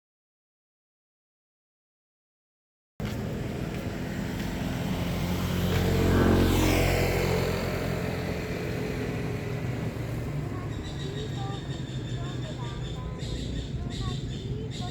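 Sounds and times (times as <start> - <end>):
motor vehicle passing close by: 3.0 - 14.9
steady engine hum: 3.0 - 14.9.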